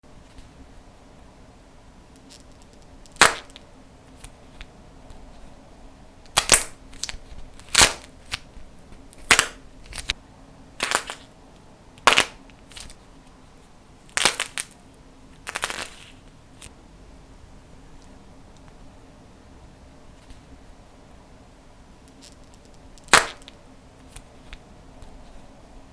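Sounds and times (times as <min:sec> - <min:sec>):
slime snapping: 0:06.3 - 0:08.1, 0:23.0 - 0:23.6.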